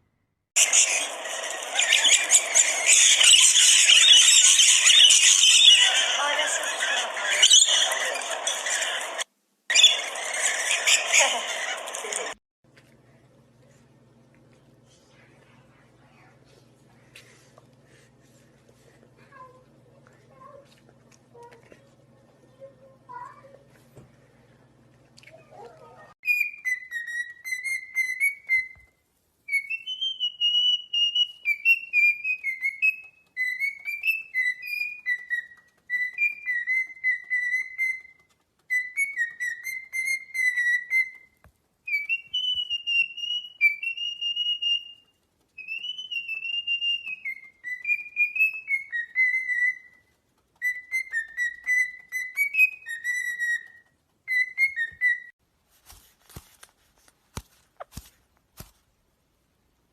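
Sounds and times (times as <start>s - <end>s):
parrot whistling a tune: 0.6s - 11.4s, 26.2s - 28.9s, 29.5s - 55.3s.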